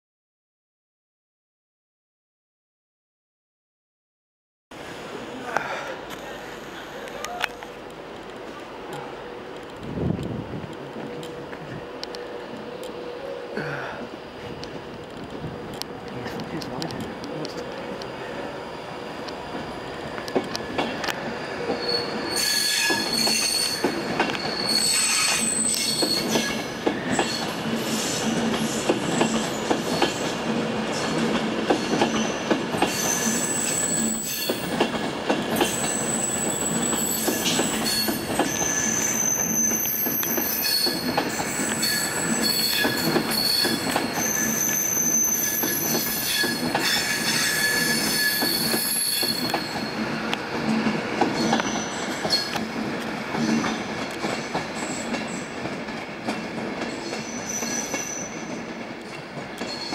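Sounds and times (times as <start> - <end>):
train rumble: 4.8 - 59.9
rail joint clicks: 5.6 - 59.9
train wheels squealing: 20.7 - 30.4, 31.0 - 34.9, 35.5 - 50.3, 51.2 - 52.7, 53.4 - 55.6, 56.4 - 59.9.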